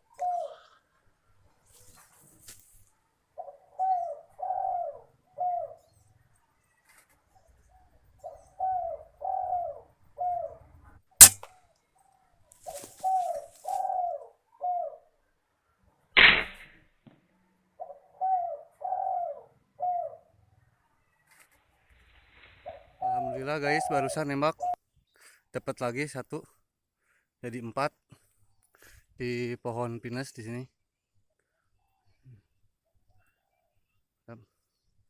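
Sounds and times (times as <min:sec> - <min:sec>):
dove cooing: 0:00.0 - 0:00.8, 0:03.4 - 0:05.9, 0:08.2 - 0:10.6, 0:12.6 - 0:15.1, 0:17.8 - 0:20.3, 0:22.6 - 0:24.8
air rifle shot: 0:11.2 - 0:11.5, 0:16.2 - 0:16.8
rustling: 0:12.6 - 0:13.8.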